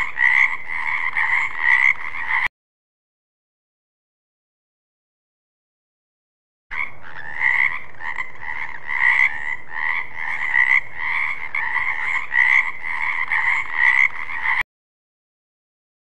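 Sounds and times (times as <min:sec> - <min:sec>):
frog croaking: 0:00.0 - 0:02.5, 0:06.7 - 0:14.6.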